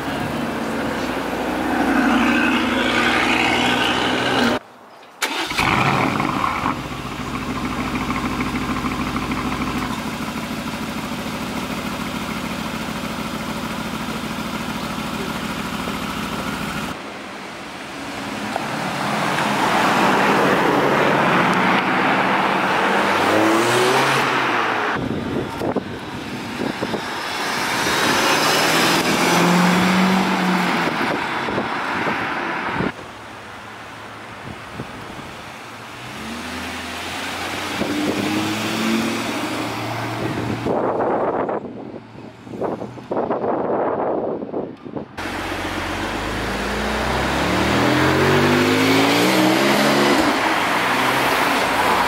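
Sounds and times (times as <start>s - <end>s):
car engine pulling away: 0.0s - 4.6s, 5.2s - 17.0s, 18.6s - 33.0s, 35.9s - 41.0s, 45.2s - 52.0s
car engine starting and idling: 0.0s - 4.6s, 5.2s - 17.0s, 45.2s - 52.0s
car revving and driving past: 0.0s - 4.6s, 18.3s - 25.1s, 26.3s - 32.9s, 35.9s - 41.1s, 45.2s - 52.0s.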